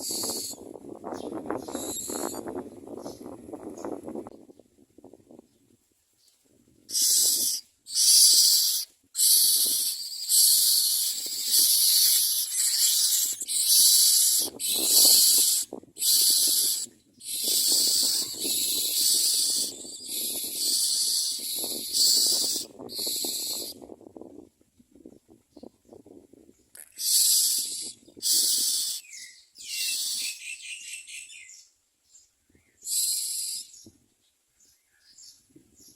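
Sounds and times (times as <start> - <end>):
nestlings hissing begging calls: 0.0 - 0.6, 1.6 - 2.4, 6.9 - 23.8, 27.0 - 30.6, 32.8 - 33.7.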